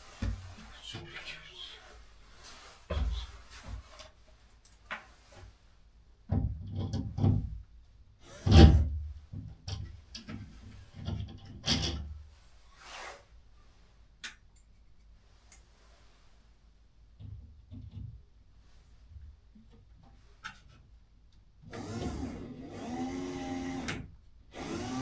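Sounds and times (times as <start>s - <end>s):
objects knocking and scraping: 2.5s - 4.2s, 6.3s - 7.6s.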